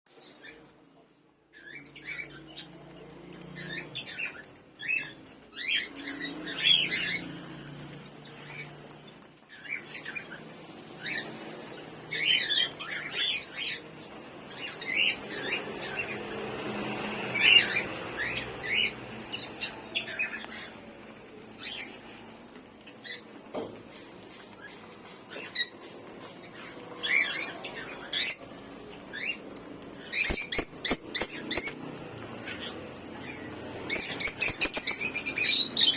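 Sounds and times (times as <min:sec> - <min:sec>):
birds chirping and squawking: 0:00.1 - 0:35.9.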